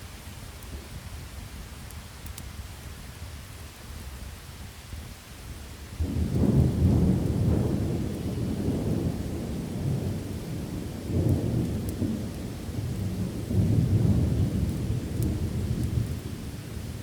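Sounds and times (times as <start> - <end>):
steady rain: 0.0 - 17.0
rolling thunder: 6.0 - 17.0.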